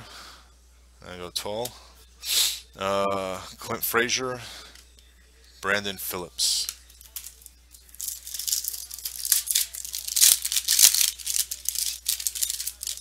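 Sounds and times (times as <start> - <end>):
foil wrappers crinkling: 6.6 - 13.0.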